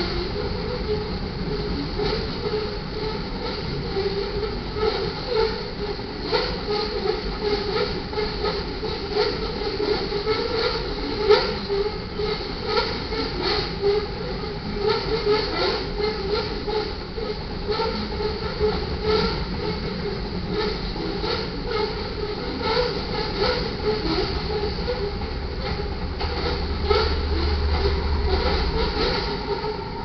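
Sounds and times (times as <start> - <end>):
wheels clicking over rail joints: 0.0 - 30.0
freight train rolling past: 14.6 - 30.0.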